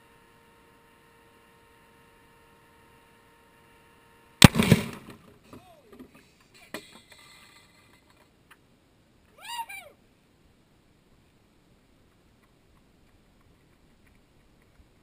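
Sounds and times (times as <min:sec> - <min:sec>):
loud explosion: 0:04.4 - 0:05.1.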